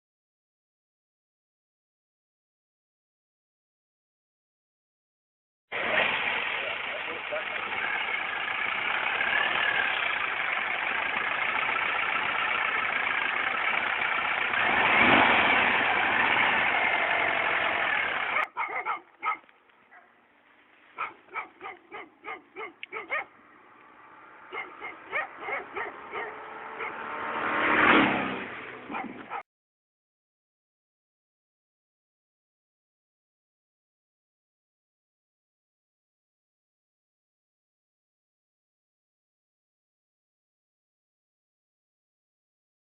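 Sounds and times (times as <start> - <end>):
engine running: 5.7 - 18.6, 20.2 - 29.4
dog barking: 18.3 - 20.2, 21.0 - 23.4, 24.5 - 27.0, 28.9 - 29.4.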